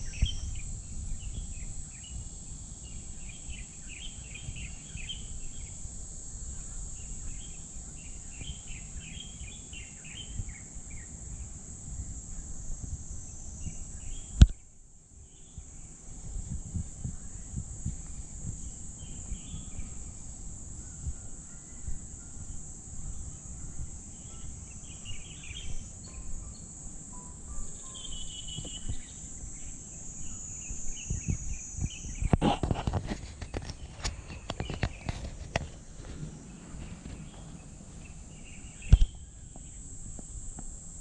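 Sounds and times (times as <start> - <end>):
high-pitched insect drone: 0.0 - 41.0
crunching footsteps: 28.4 - 29.5, 31.3 - 40.8.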